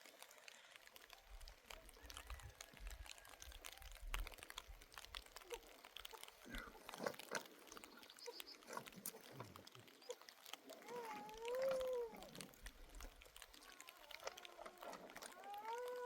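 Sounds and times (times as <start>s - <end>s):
small clicks and knocks: 0.0s - 16.0s
drawn-out animal call: 5.1s - 16.0s.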